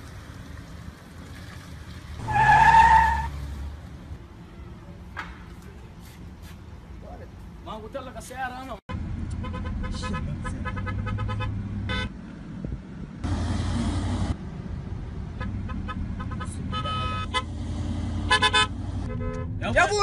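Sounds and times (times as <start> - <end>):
car engine and road rumble: 0.0 - 20.0
car horn honking: 9.3 - 12.2, 15.4 - 17.6, 18.2 - 19.6.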